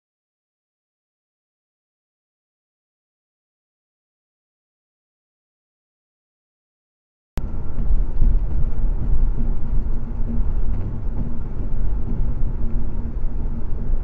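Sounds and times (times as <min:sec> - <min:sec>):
car driving rumble: 0:07.4 - 0:14.0.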